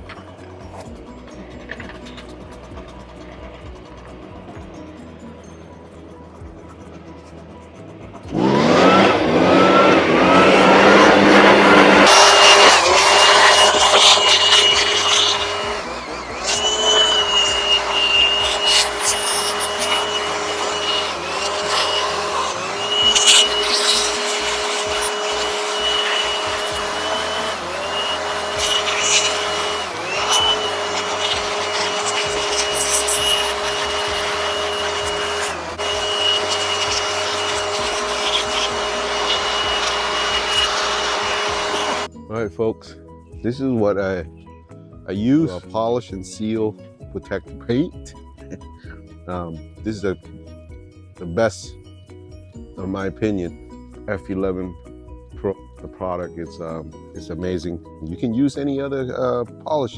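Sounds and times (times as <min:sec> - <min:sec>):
small two-stroke engine running: 0:00.0 - 0:05.2, 0:08.1 - 0:42.1.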